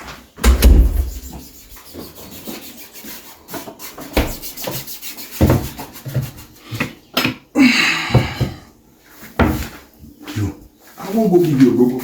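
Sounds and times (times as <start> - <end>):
harsh scrape: 0.4 - 3.2.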